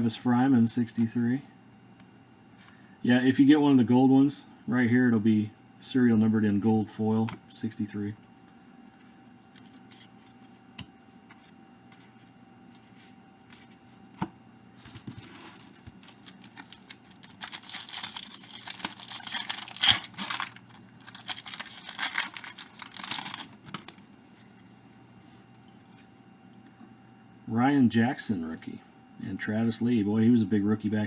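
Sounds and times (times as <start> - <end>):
wrapper tearing and crinkling: 15.2 - 24.0.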